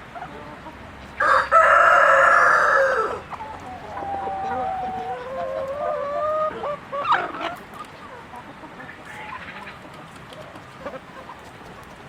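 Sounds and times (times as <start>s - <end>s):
chickens clucking: 0.0s - 12.0s
chicken squawk: 1.2s - 9.8s.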